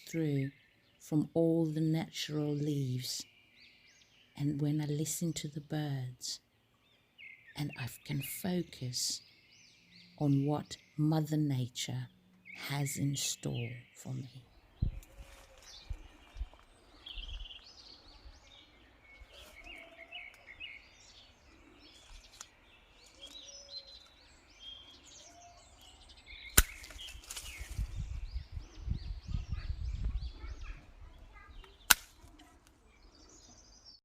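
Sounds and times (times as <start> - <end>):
birds chirping and singing: 0.0 - 34.0
sharp clicks: 31.6 - 32.5.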